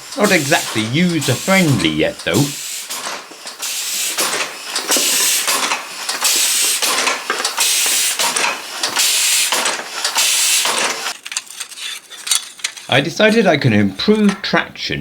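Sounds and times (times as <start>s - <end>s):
air engine exhaust hissing: 0.0s - 11.1s.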